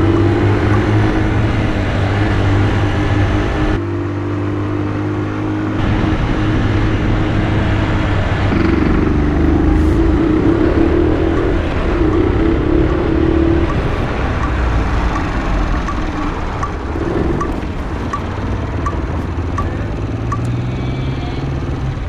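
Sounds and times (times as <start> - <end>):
light regular ticking: 0.0 - 2.3, 8.5 - 22.0
road and wind noise: 0.0 - 22.0
motorcycle engine running: 5.5 - 22.0.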